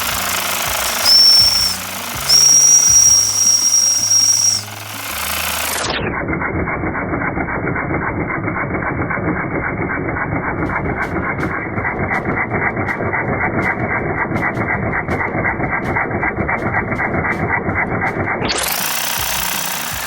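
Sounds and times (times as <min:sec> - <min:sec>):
muffled rapid pulse: 0:00.0 - 0:04.8, 0:09.8 - 0:20.0
steam whistle blowing: 0:00.0 - 0:04.8
toy steam engine chattering: 0:00.0 - 0:06.0, 0:09.0 - 0:20.0.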